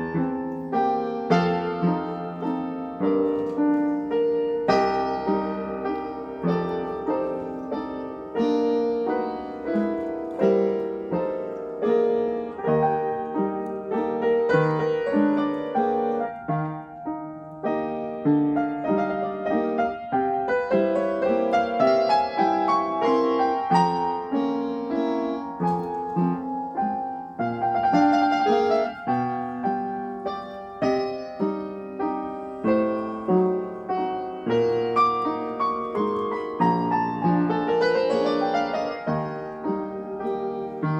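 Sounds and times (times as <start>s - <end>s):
piano music: 0.0s - 40.9s.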